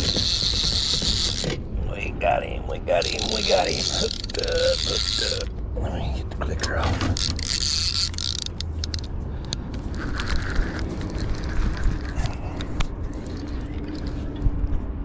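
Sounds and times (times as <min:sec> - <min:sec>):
fishing reel ratcheting: 0:00.0 - 0:01.6, 0:03.0 - 0:05.5, 0:07.0 - 0:14.5.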